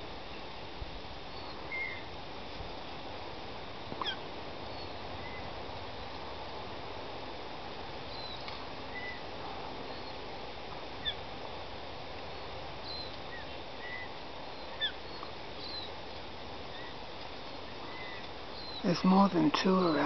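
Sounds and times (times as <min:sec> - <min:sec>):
background hiss: 0:00.0 - 0:20.0
birds chirping and whistling: 0:08.1 - 0:09.2, 0:12.8 - 0:15.9, 0:17.8 - 0:18.9
descending bird calls: 0:12.8 - 0:16.0, 0:16.6 - 0:20.0.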